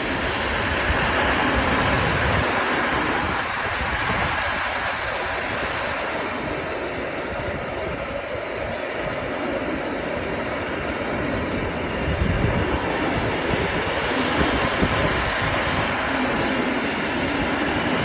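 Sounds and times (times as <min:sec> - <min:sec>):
freight train rumbling past: 0:00.0 - 0:18.0.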